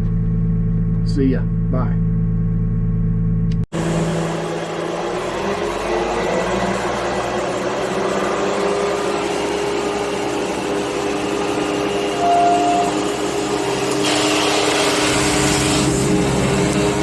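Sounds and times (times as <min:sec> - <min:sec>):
diesel engine running: 0:00.0 - 0:17.0
hydraulic mower running: 0:03.7 - 0:17.0.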